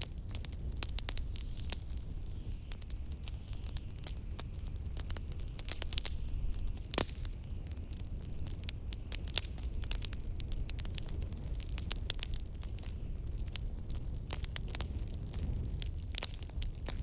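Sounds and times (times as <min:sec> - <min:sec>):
blizzard wind rumble: 0:00.0 - 0:17.0
fireplace crackling and popping: 0:00.0 - 0:17.0.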